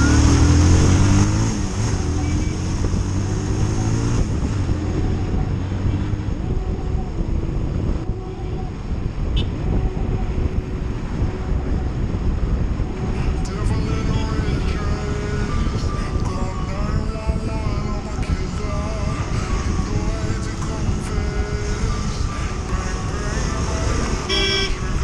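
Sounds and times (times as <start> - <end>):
motorcycle engine accelerating: 0.0 - 6.6
wind noise on microphone: 0.0 - 25.0.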